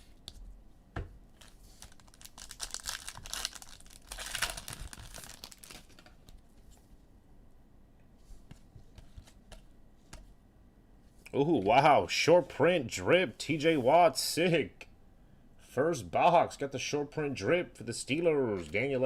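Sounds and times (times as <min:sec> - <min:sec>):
wrapper tearing and crinkling: 0:01.4 - 0:06.4.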